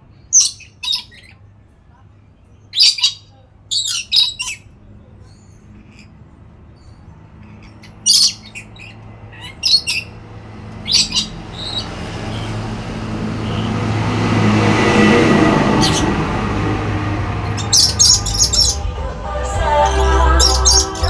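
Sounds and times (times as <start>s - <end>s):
parrot squawks: 0.3s - 1.4s, 2.7s - 4.7s, 7.4s - 10.2s, 10.8s - 12.6s, 17.6s - 18.8s, 20.4s - 21.0s.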